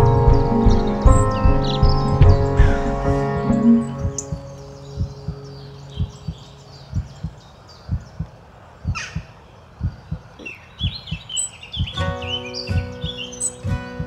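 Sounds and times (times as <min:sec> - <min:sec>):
guitar song: 0:00.0 - 0:05.4, 0:12.0 - 0:14.0
heartbeat thumps: 0:00.0 - 0:12.0
birds chirping: 0:00.0 - 0:14.0.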